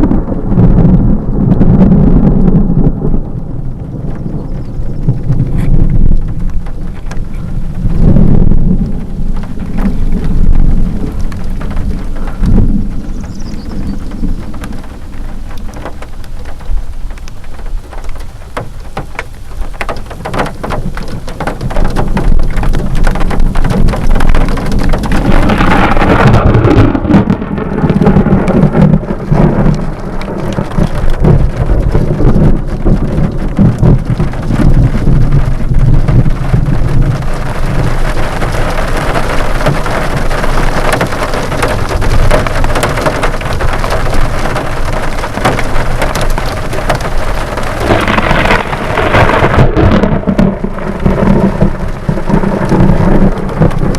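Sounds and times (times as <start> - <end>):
heavy rain falling: 0.0 - 53.9
thunder rumbling: 0.0 - 53.9.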